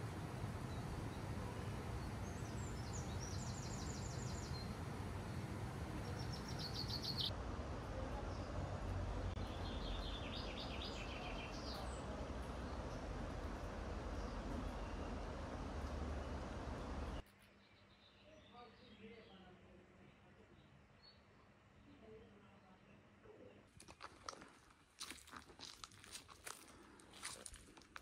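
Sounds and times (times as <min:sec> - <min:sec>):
songbird singing: 0:00.0 - 0:07.4, 0:08.0 - 0:23.7
low outdoor rumble: 0:00.0 - 0:17.2.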